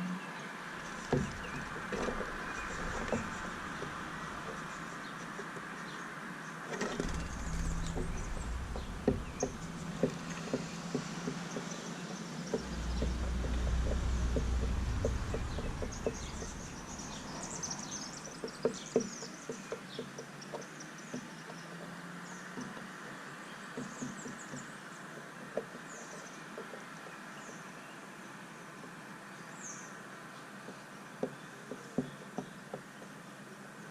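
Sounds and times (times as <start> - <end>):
low rumble: 0.8 - 5.1, 6.9 - 11.5, 12.5 - 18.4.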